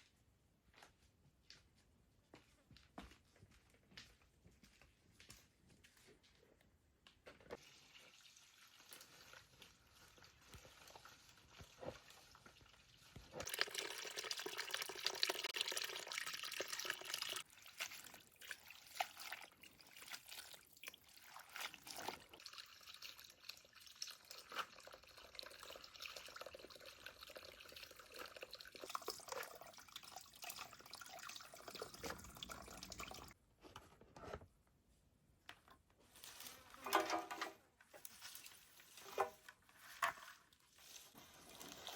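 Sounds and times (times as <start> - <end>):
water running from a tap: 7.6 - 20.2, 21.0 - 33.4
water dripping: 7.9 - 33.4
dishes clattering in a sink: 36.8 - 37.6.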